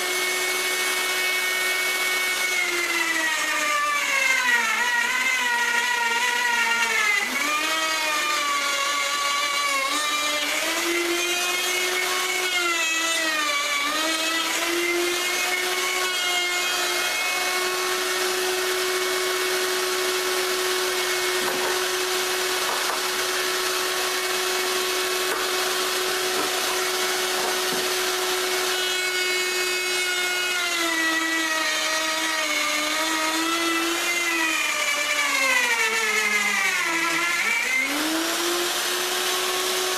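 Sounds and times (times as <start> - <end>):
router motor whine cutting wood: 0.0 - 39.9.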